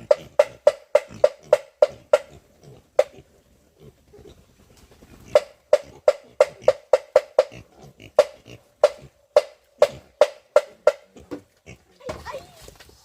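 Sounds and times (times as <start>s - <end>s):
sharp wooden knocks: 0.0s - 2.3s, 5.3s - 7.5s, 8.2s - 11.5s.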